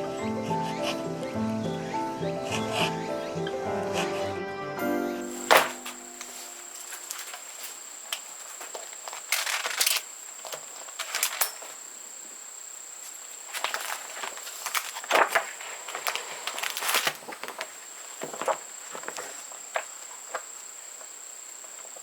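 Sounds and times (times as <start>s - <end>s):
rustling and clicks of handling: 5.3s - 12.4s, 13.0s - 22.0s.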